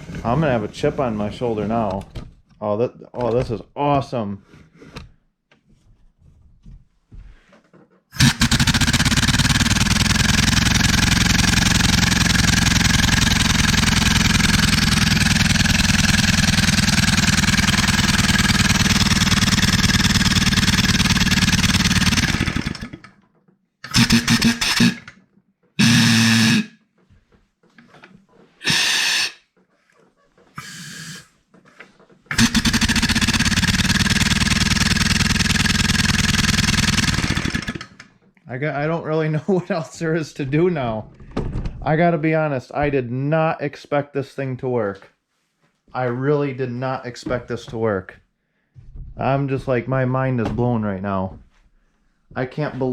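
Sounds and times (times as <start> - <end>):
compressed air engine running: 8.2 - 23.0, 23.9 - 25.1, 25.8 - 26.8, 28.6 - 29.4, 30.6 - 31.3, 32.3 - 38.0
air bursts: 25.8 - 26.7, 28.6 - 29.5, 30.6 - 31.3.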